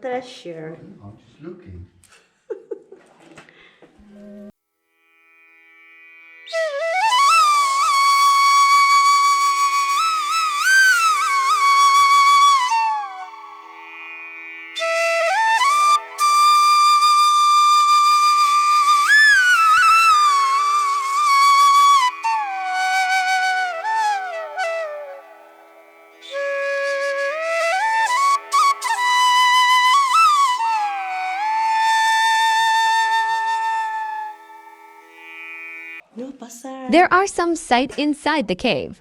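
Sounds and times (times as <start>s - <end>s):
solo flute-like melody: 6.4s - 35.4s.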